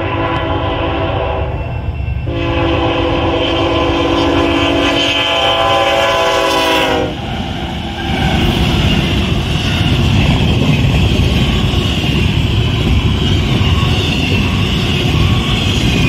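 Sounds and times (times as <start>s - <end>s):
locomotive air horn chord: 0.0s - 1.6s, 2.3s - 7.2s
train wheels roaring on rails: 0.0s - 16.0s.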